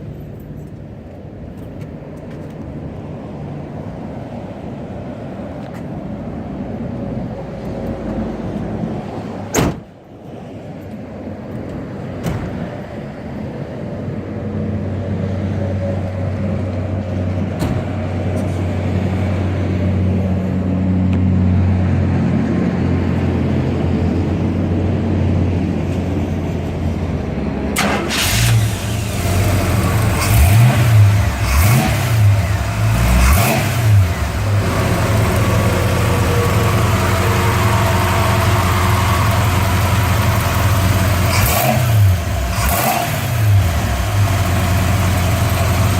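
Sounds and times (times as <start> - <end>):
car engine idling and revving: 10.4 - 45.9.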